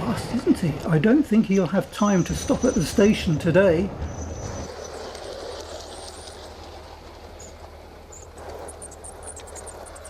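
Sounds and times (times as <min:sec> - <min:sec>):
wheels on rails: 0:00.0 - 0:10.0
model train motor humming: 0:04.7 - 0:10.0.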